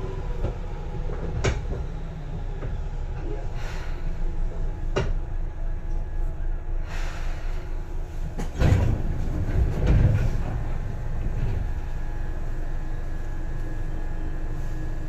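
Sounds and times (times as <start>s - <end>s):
train running gear rumble: 0.0s - 15.0s
heavy clattering and thumping: 8.3s - 12.0s.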